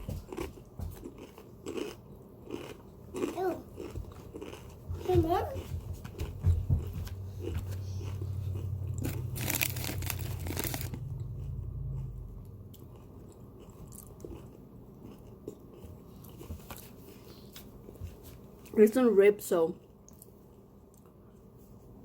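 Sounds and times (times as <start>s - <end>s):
crunching and chewing food: 0.0s - 22.0s
low rumble: 7.0s - 12.9s.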